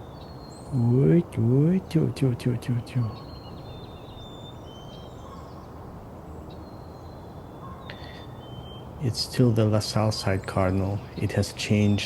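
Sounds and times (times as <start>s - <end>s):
cardinal singing whistled notes: 0.0s - 5.6s.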